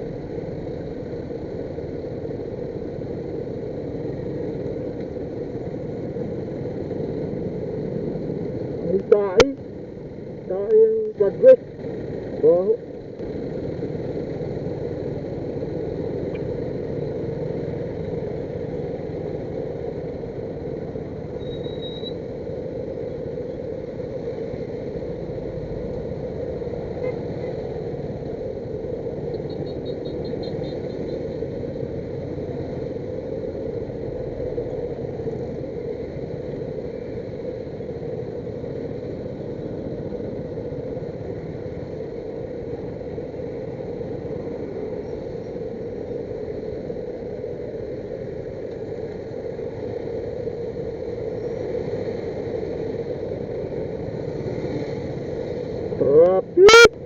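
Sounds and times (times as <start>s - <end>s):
motor traffic rumble: 0.0s - 57.0s.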